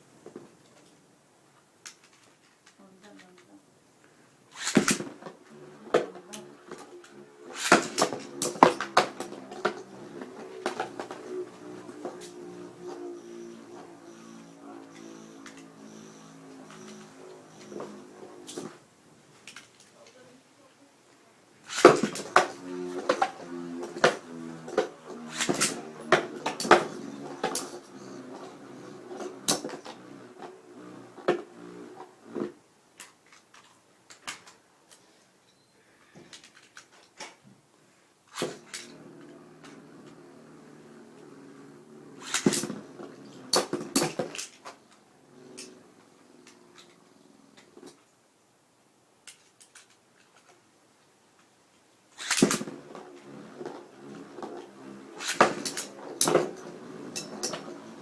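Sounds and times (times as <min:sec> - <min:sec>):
spinning tops knocking together: 0:04.5 - 0:05.2, 0:07.5 - 0:12.5, 0:52.2 - 0:52.8
spinning tops whirring: 0:04.5 - 0:20.1, 0:21.6 - 0:32.5, 0:38.3 - 0:47.8, 0:52.1 - 0:58.0
spinning tops clacking: 0:06.4 - 0:18.7, 0:54.8 - 0:58.0.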